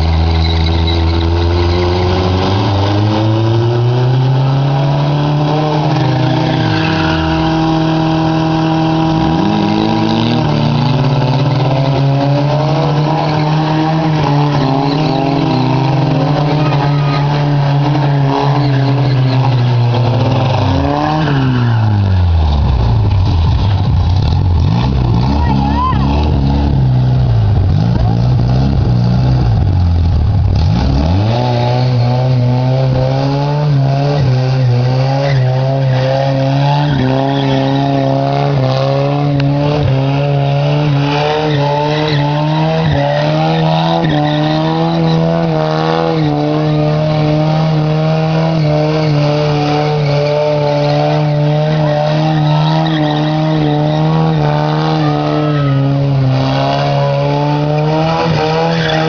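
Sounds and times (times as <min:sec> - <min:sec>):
tyres squealing: 0:00.0 - 0:03.3, 0:04.3 - 0:22.2, 0:34.2 - 0:47.7, 0:48.4 - 0:59.0
engine revving high: 0:00.0 - 0:59.0.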